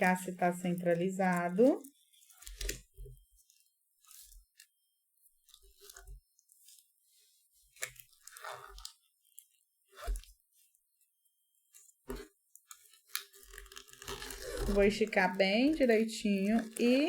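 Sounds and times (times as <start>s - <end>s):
paper crinkling and rustling: 0.0s - 4.7s, 11.8s - 17.0s.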